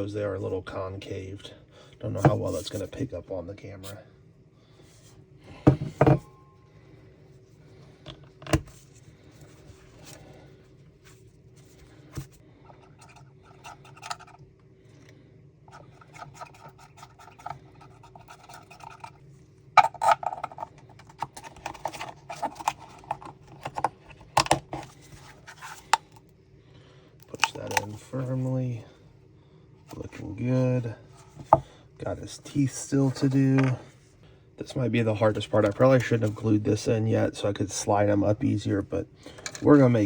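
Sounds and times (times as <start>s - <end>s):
plastic parts knocking and scraping: 5.6s - 6.3s, 19.8s - 26.2s, 31.3s - 31.7s, 33.1s - 33.8s.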